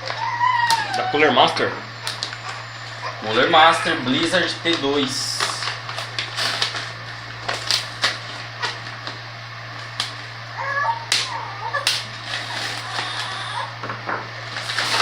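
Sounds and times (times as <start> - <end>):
high wavering whimper: 0.0 - 4.8, 10.4 - 13.8
screwdriver tearing box tape: 6.0 - 6.8.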